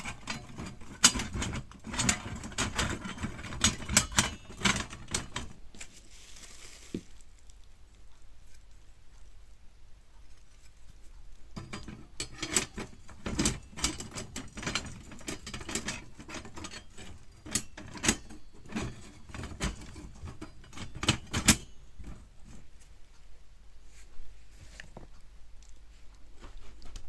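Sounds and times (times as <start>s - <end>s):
metal parts clicking and clinking: 0.0s - 5.6s, 11.6s - 22.6s.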